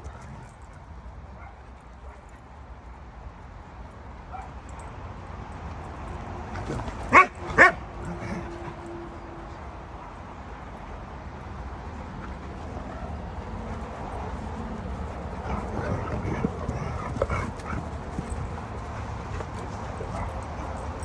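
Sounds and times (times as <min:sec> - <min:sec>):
dogs playing vocalisations: 0:06.5 - 0:09.1, 0:12.2 - 0:21.0.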